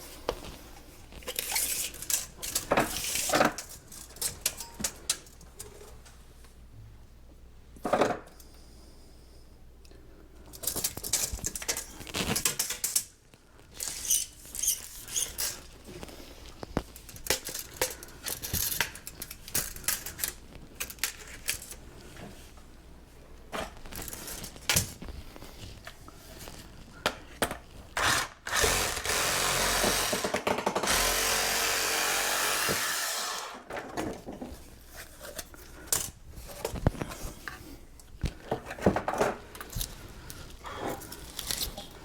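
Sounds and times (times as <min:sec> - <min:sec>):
plastic pipes knocking together: 0:30.1 - 0:30.9.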